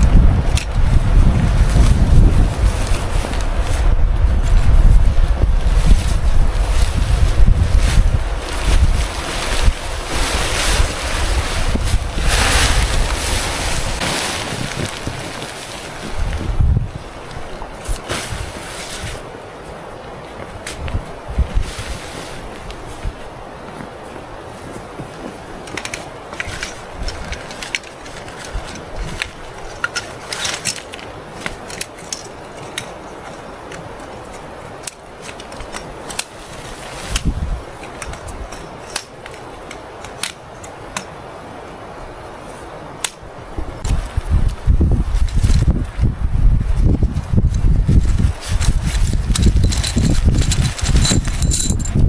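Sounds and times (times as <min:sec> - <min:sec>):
wind rushing: 0:00.0 - 0:14.9
storm wind buffeting microphone: 0:00.0 - 0:19.2, 0:20.6 - 0:23.4, 0:37.1 - 0:38.5, 0:43.3 - 0:52.0
gear clicking and crunching: 0:48.6 - 0:52.0.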